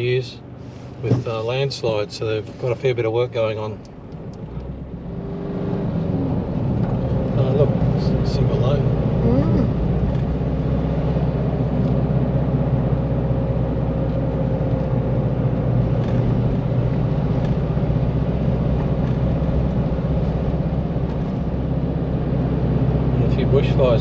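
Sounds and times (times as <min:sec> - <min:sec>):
engine and tyre drone in cab: 0:00.0 - 0:24.0.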